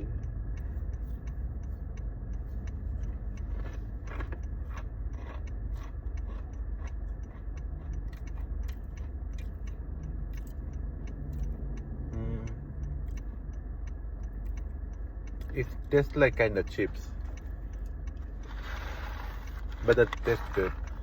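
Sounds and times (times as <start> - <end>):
crunching dry noodle snack: 3.0 - 9.6, 18.4 - 21.0.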